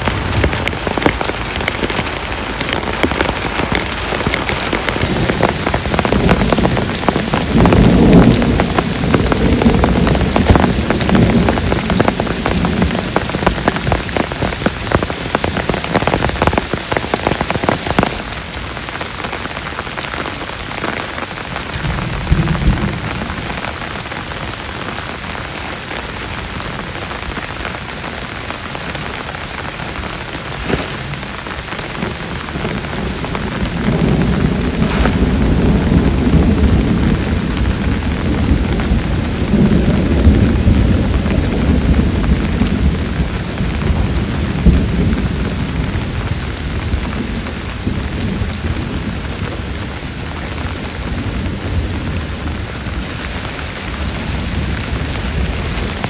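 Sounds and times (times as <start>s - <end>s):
heavy rain beating on a surface: 0.0s - 56.0s
thunder rumbling: 0.0s - 56.0s.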